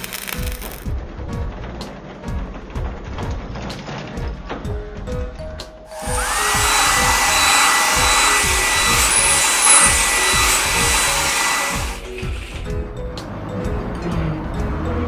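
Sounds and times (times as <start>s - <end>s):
background music with steady beat: 0.4s - 15.0s
car wash blower hissing: 5.9s - 12.6s
machine whine: 5.9s - 12.6s.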